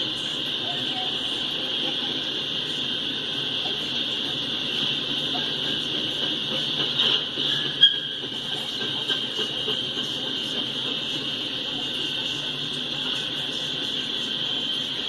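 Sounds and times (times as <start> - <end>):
train cars rumbling on rails: 0.0 - 15.0.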